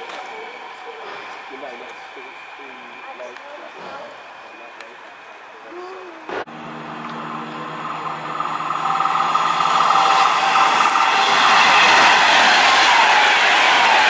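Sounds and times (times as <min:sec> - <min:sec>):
train rushing on rails: 0:00.0 - 0:05.6, 0:06.4 - 0:14.0
high whine: 0:06.5 - 0:14.0.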